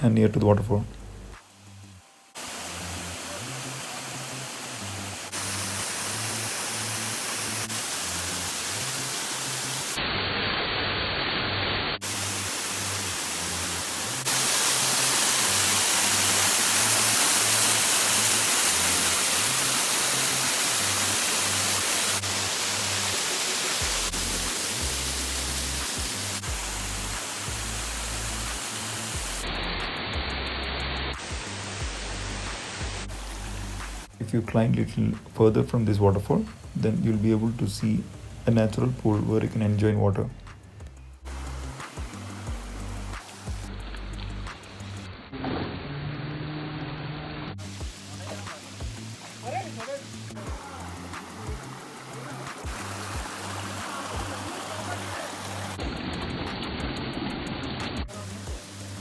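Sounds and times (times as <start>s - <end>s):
background music with pulsing bass: 0.0s - 6.3s, 23.8s - 45.3s, 47.6s - 56.4s
waterfall rushing water: 2.4s - 10.0s, 12.0s - 29.5s, 31.2s - 34.2s, 41.3s - 43.7s, 47.6s - 55.8s, 58.1s - 59.0s.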